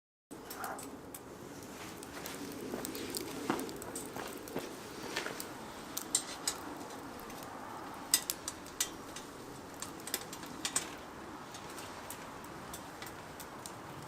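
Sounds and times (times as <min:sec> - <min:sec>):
utensils clicking against grill: 0:06.0 - 0:07.5, 0:08.1 - 0:14.0.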